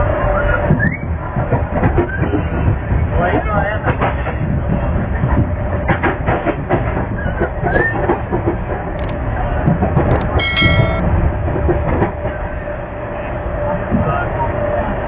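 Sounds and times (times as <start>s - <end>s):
train rumble and rattle: 1.1s - 9.1s
clicks of train wheels: 10.1s - 11.0s.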